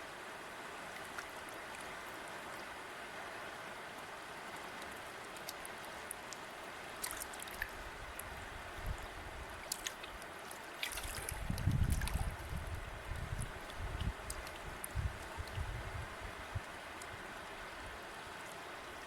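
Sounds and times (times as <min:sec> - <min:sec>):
river water rushing: 0:00.0 - 0:15.5
small water splashes: 0:00.8 - 0:02.7, 0:04.5 - 0:15.7.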